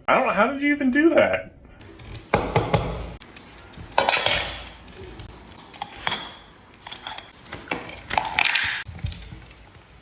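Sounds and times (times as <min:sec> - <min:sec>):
hard objects clattering: 0:03.9 - 0:09.5.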